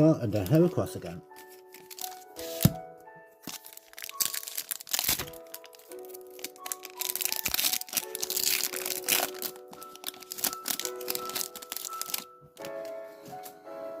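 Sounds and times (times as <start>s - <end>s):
background music: 0.0s - 14.0s
foil wrapper crinkling and tearing: 1.4s - 2.7s, 3.4s - 12.8s.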